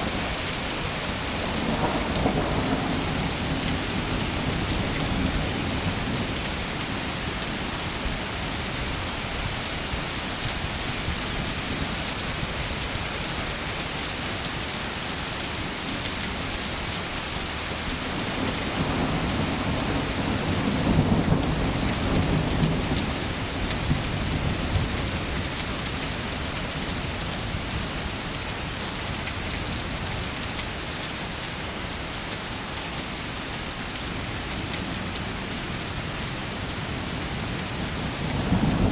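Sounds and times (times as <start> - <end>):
low rumble of thunder: 0.0 - 9.5, 17.8 - 27.9, 36.0 - 38.9
heavy rain falling: 0.0 - 38.9.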